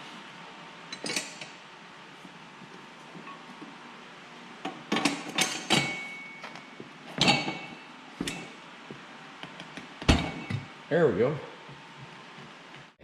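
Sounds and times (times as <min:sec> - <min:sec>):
metal clanks and knocks: 0:04.9 - 0:06.6, 0:07.2 - 0:08.6, 0:10.0 - 0:10.7.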